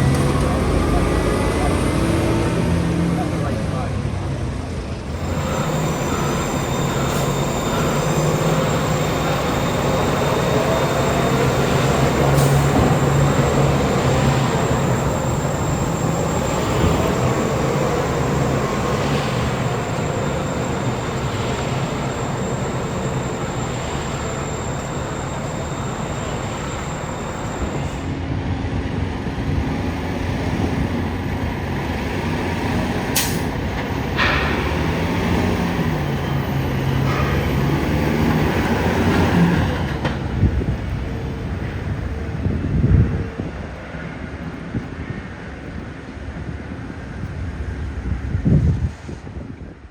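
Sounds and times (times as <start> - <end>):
diesel truck engines running: 0.0 - 49.7.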